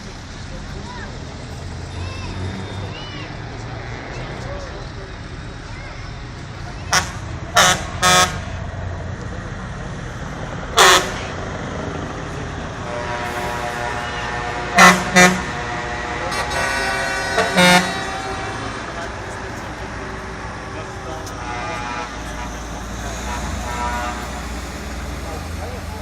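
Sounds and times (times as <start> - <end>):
engines running: 0.0 - 26.0
long steady horn tone: 6.9 - 8.6, 10.8 - 11.4, 12.8 - 26.0
truck air horn blasts: 6.9 - 8.6, 10.8 - 11.4, 12.8 - 19.3, 20.9 - 25.5.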